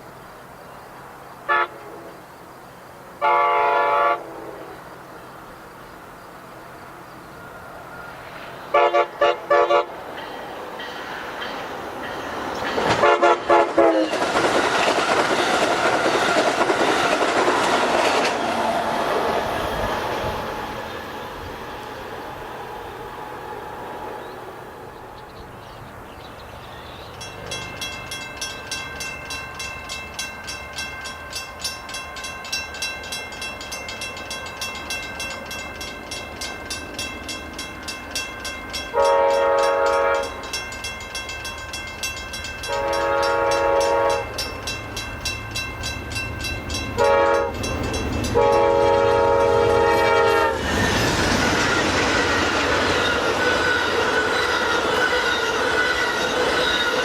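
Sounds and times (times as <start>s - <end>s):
train passing: 0.0s - 57.0s
locomotive air horn: 1.5s - 2.1s, 3.2s - 4.7s, 7.6s - 10.0s, 12.9s - 14.2s, 38.9s - 40.4s, 42.6s - 44.4s, 47.0s - 47.6s, 48.3s - 51.0s
crossing bell ringing: 8.8s - 14.3s, 26.9s - 51.0s, 51.6s - 57.0s.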